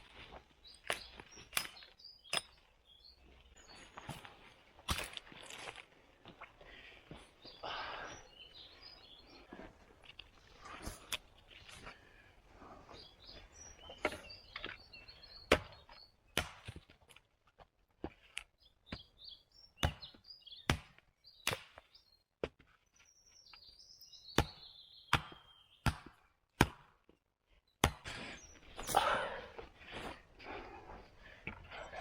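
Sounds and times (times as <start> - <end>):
birds chirping faintly: 0.0 - 17.4, 18.0 - 26.5, 27.5 - 32.0
wood being chopped: 15.5 - 16.9, 19.8 - 22.7, 24.4 - 27.2, 27.8 - 28.2.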